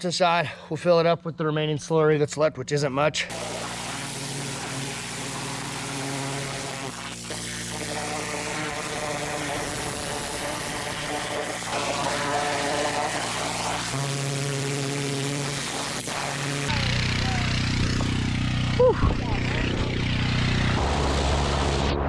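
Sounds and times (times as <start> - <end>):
machine motor buzzing drone: 3.3 - 22.0.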